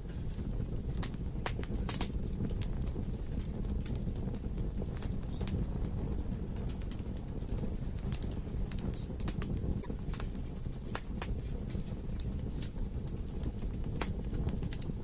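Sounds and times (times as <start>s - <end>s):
wood logs crackling in fireplace: 0.0s - 15.0s.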